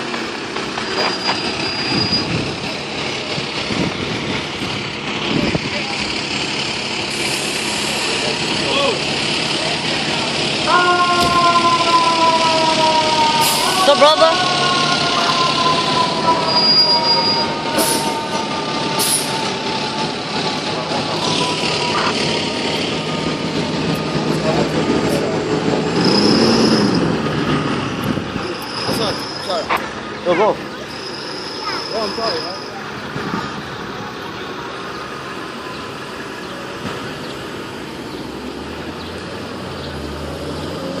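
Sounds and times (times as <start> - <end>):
street traffic noise: 0.0 - 41.0
fire engine siren: 6.0 - 38.0.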